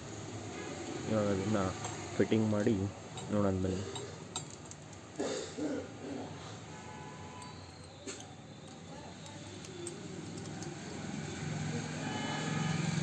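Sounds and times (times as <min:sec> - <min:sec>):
small metal parts clicking: 0:02.6 - 0:05.2, 0:07.4 - 0:10.9.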